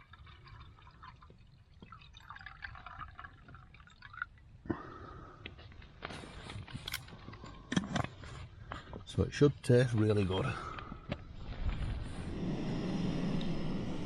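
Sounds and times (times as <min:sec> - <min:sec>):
water pouring into a pot: 0:00.0 - 0:04.5.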